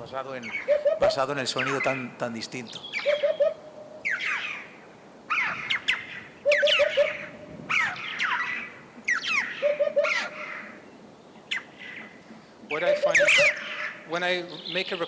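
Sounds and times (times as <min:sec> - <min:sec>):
choughs giving harsh calls: 0:00.0 - 0:15.0.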